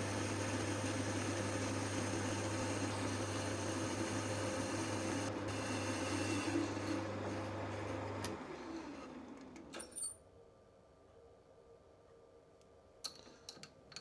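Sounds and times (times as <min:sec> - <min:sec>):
metal lathe motor hum: 0:00.0 - 0:09.4.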